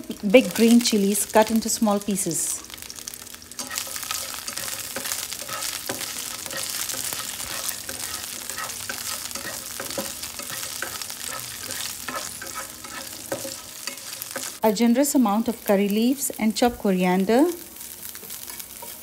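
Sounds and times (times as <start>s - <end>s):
frying in hot oil sizzling: 0.0s - 19.0s
spatula scraping pan: 3.6s - 14.6s, 17.8s - 19.0s.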